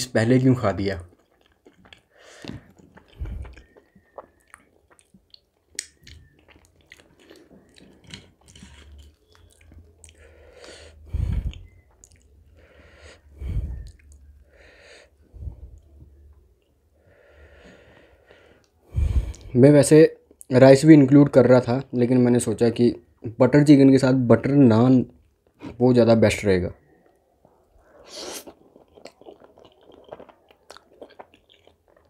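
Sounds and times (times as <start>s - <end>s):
wet chewing smacks: 1.1s - 10.3s, 11.4s - 12.4s, 28.3s - 32.0s.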